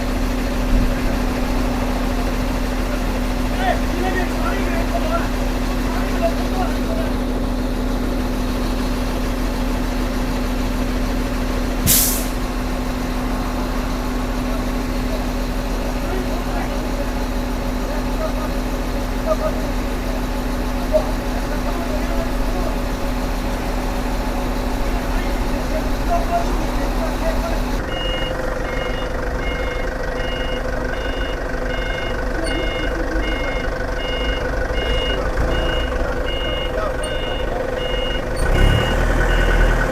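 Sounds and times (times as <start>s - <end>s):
heavy engine idling: 0.0s - 39.9s
hissing air burst: 11.8s - 12.4s
two-tone reversing alarm beeping: 27.8s - 39.7s.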